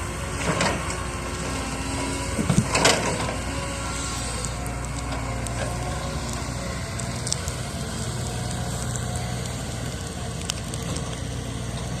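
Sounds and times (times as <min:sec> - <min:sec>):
bonfire crackling and popping: 0:03.8 - 0:12.0.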